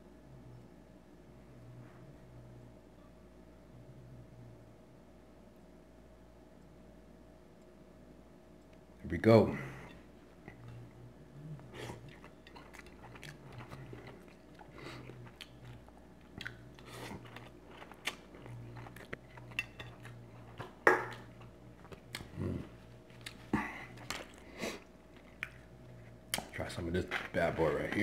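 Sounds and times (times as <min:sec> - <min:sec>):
low hum: 0:00.0 - 0:28.0
person chewing food: 0:10.0 - 0:28.0.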